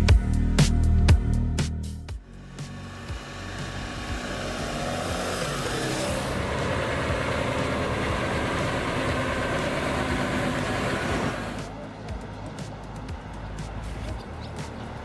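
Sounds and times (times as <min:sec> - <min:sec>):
road noise: 0:00.0 - 0:15.0
truck engine running: 0:02.2 - 0:15.0.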